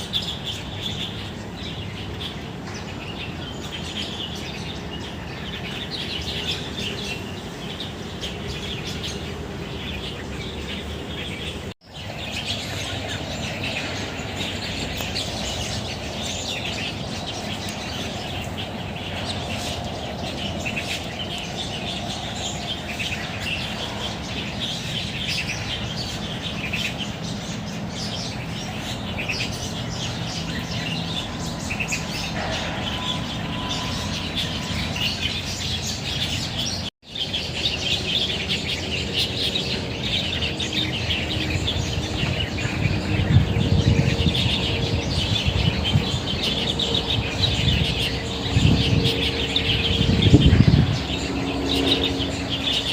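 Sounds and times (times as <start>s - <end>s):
birds chirping chorus: 0.0s - 52.9s.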